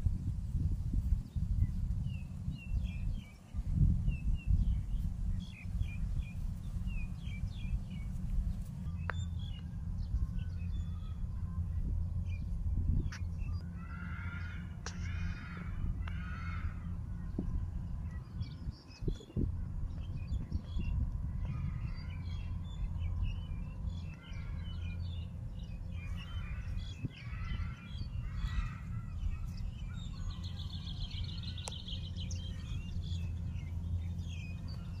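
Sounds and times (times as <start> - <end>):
steady low rumble: 0.0 - 35.0
birds chirping and calling: 0.9 - 35.0.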